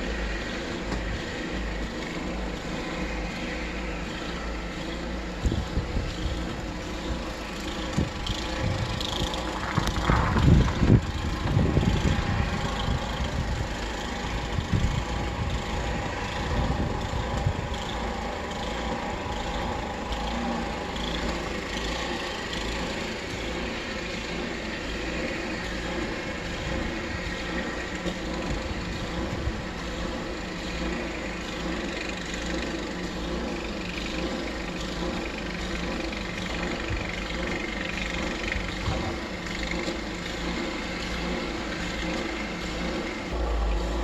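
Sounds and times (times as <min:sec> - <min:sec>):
heavy low rumbling: 0:00.0 - 0:31.7, 0:35.4 - 0:44.0
engine running: 0:00.0 - 0:44.0.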